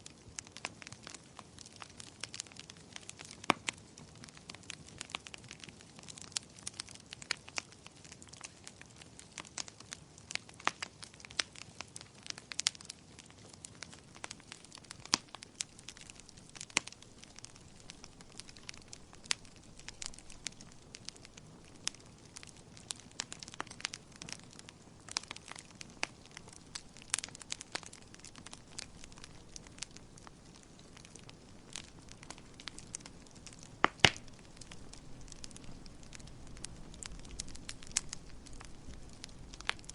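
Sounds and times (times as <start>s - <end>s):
soft steady hiss: 0.0s - 39.9s
wood fire crackling: 0.0s - 39.9s.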